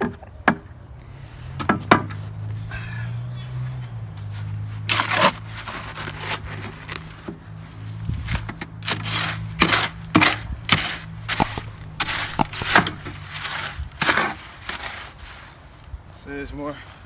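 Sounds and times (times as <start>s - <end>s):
tool scraping concrete mix: 4.4s - 15.7s.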